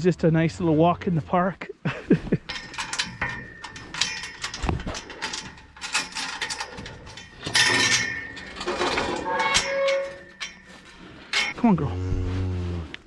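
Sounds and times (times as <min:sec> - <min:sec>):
high squeak: 0:09.2 - 0:10.3.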